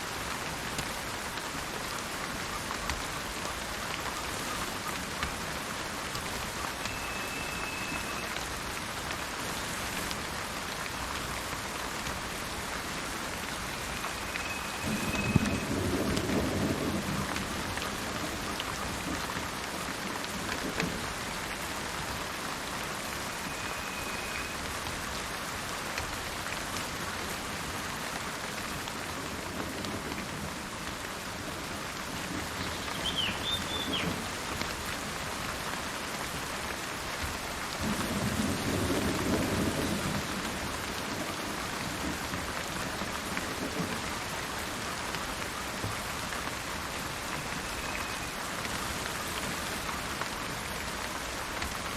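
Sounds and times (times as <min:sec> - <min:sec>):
steady rain falling: 0:00.0 - 0:51.9
faint high bird calls: 0:06.8 - 0:08.4, 0:32.6 - 0:34.2, 0:47.4 - 0:48.4
thunder rumbling: 0:14.6 - 0:18.2.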